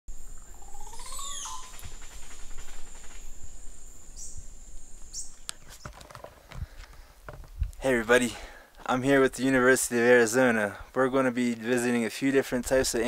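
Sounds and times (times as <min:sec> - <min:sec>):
birds calling: 0:00.2 - 0:07.3.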